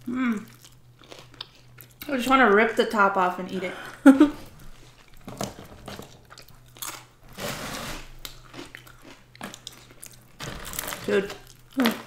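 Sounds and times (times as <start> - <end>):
crunchy bites and chewing: 6.2 - 7.2, 8.0 - 12.0
pizza crust crackling: 10.1 - 12.0.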